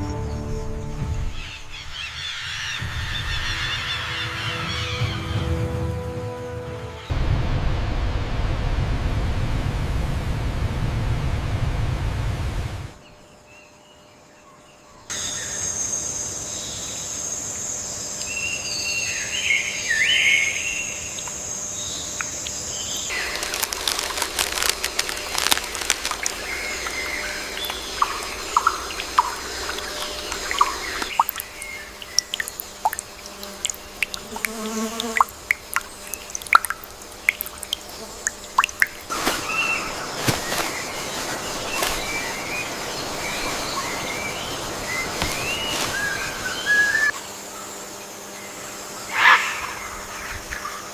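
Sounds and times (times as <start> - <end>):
high insect shrill: 48.9 - 50.3.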